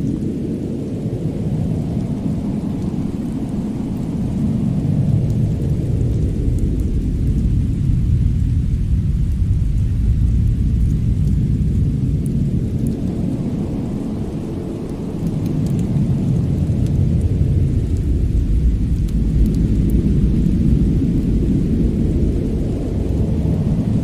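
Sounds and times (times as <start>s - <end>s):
faint fire crackles: 0.0s - 24.0s
fireplace fire rumbling: 0.0s - 24.0s.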